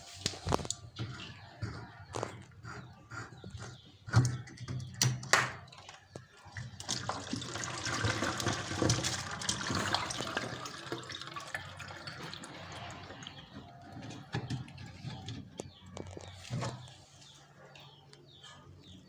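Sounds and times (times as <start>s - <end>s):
water pouring and splashing: 5.6s - 13.7s.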